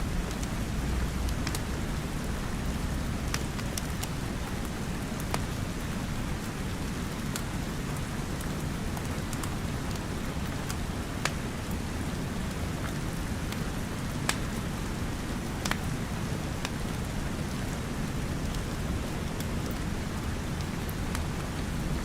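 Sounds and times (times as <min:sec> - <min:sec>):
steady rain: 0:00.0 - 0:22.0
wood fire crackling and popping: 0:00.3 - 0:02.3, 0:03.2 - 0:05.8, 0:13.5 - 0:14.6, 0:15.6 - 0:15.9, 0:18.5 - 0:21.6.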